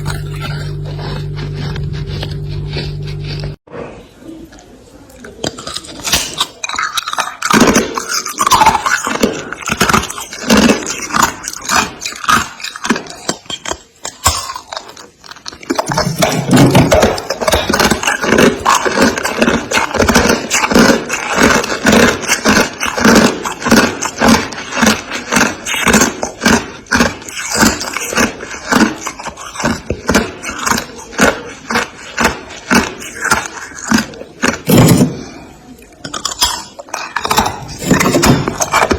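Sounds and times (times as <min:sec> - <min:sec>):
freezer frost being scraped: 0:00.0 - 0:03.6, 0:05.4 - 0:35.4, 0:36.2 - 0:38.9.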